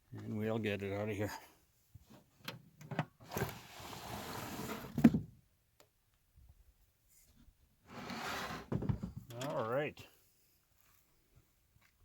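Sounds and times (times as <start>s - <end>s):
cardboard box scraping and rustling: 3.4s - 5.0s.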